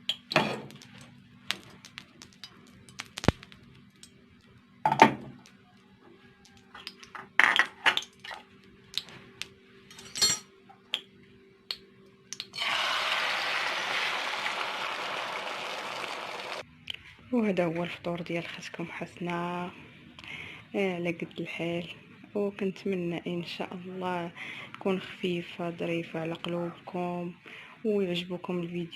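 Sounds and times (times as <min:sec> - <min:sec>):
faint steady hum: 0:00.0 - 0:28.9
dishes and cutlery clinking: 0:09.9 - 0:10.5.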